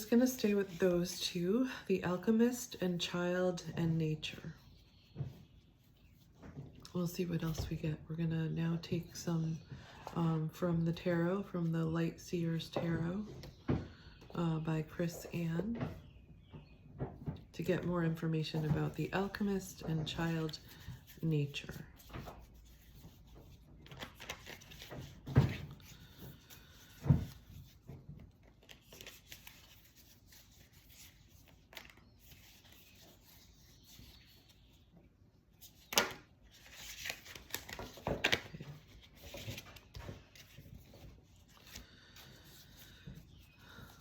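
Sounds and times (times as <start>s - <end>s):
cards being shuffled: 21.9s - 34.7s, 35.6s - 43.5s.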